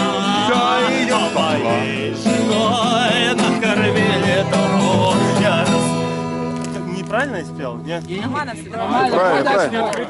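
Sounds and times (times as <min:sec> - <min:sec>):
people singing together: 0:00.0 - 0:06.2
strummed acoustic guitar: 0:00.0 - 0:09.1.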